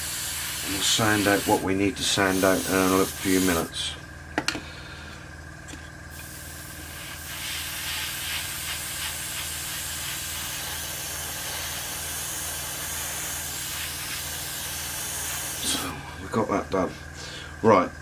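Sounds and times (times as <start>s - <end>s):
airbrush air hiss: 0.0s - 3.7s, 6.1s - 16.1s
low steady hum: 0.2s - 18.0s.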